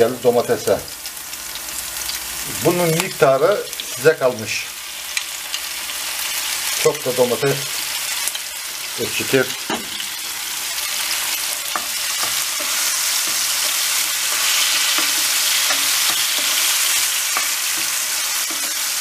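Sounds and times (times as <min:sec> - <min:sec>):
food sizzling in frying pan: 0:00.0 - 0:19.0.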